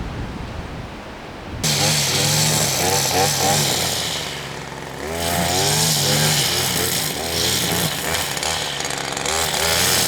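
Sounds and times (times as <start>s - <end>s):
wind blowing across microphone: 0.0s - 1.7s.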